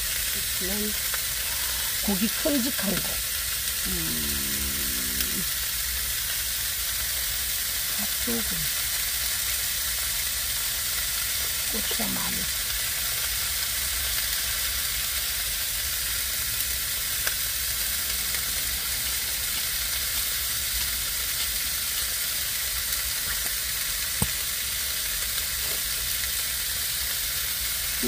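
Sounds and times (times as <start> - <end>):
meat sizzling in a pan: 0.0 - 28.0.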